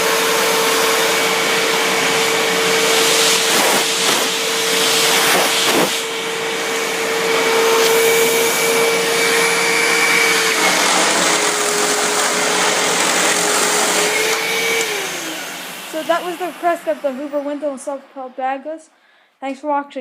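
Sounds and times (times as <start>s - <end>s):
vacuum cleaner running: 0.0s - 18.8s.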